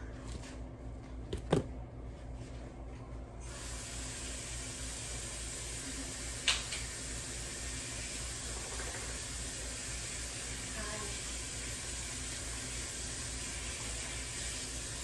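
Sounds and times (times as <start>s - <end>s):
tap water running into sink: 3.6s - 15.0s.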